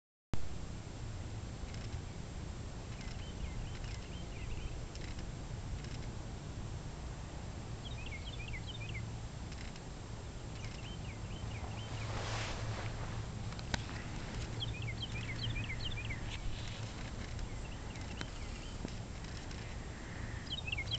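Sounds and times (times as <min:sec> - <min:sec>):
steady low hum: 0:00.4 - 0:20.9
small birds chirping: 0:02.9 - 0:06.1, 0:07.8 - 0:20.9.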